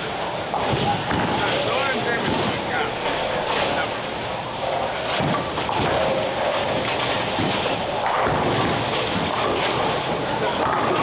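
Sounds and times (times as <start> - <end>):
bowling balls crashing into pins: 5.1 - 11.0.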